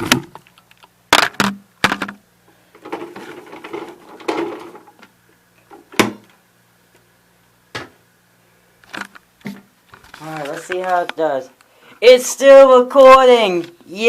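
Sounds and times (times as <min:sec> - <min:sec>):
scraping and rustling: 0:02.8 - 0:05.1, 0:08.9 - 0:11.3.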